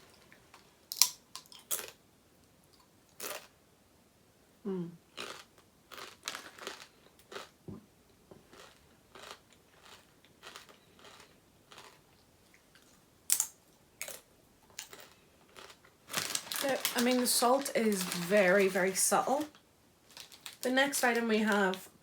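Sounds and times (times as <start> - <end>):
person crunching crisps: 0.9 - 2.0, 5.2 - 7.6, 8.5 - 12.1, 12.8 - 19.1, 20.1 - 20.7.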